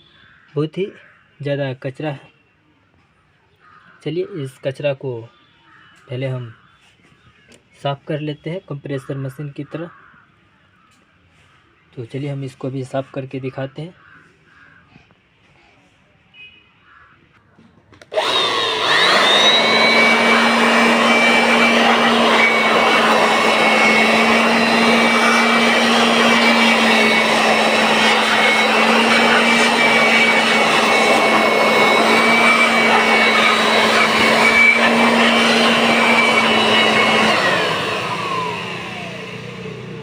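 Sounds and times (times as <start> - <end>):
electric air blower whining: 18.0 - 40.0.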